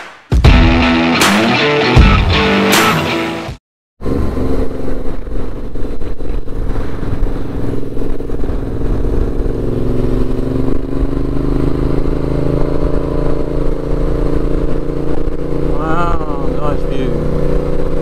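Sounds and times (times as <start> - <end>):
wind rumble: 4.0 - 15.8
motorcycle engine running: 4.0 - 18.0.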